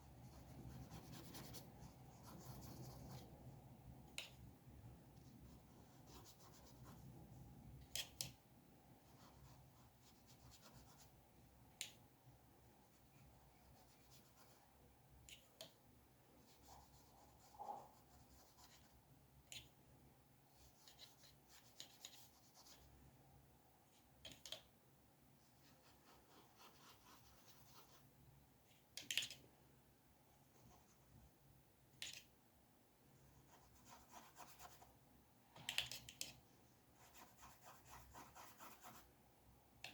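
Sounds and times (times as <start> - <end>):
low room hum: 0.0 - 39.9
pencil scratching on paper: 0.2 - 3.3, 37.0 - 39.1.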